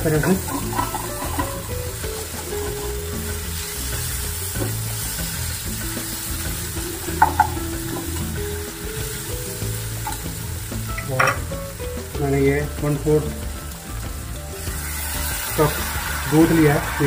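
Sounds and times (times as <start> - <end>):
metal spatula scraping a pan: 0.0 - 5.6
onions sizzling in hot oil: 0.0 - 17.0
spatula knock: 7.2 - 8.2.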